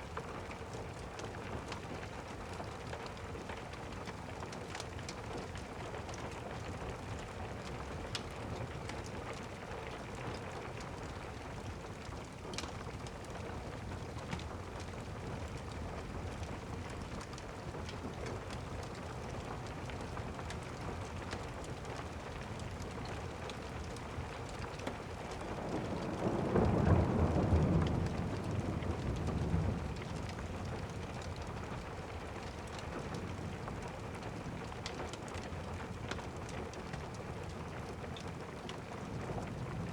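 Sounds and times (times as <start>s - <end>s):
steady rain: 0.0s - 39.9s
thunder rumbling: 25.4s - 31.9s.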